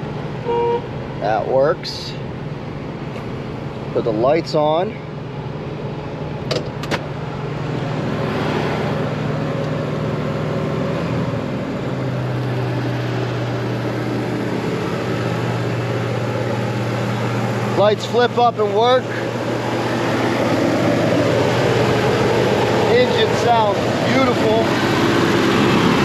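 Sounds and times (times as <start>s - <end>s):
car engine idling: 0.0s - 10.8s, 11.4s - 26.0s.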